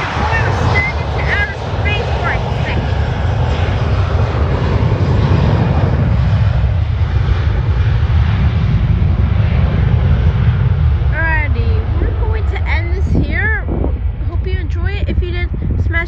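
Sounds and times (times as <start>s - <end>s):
airliner engine noise: 0.0s - 16.0s.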